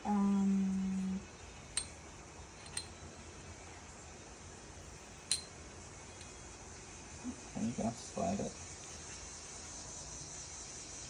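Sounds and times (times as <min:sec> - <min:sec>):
metallic clinks of car parts: 0:01.7 - 0:02.0, 0:02.6 - 0:03.0, 0:05.2 - 0:05.6.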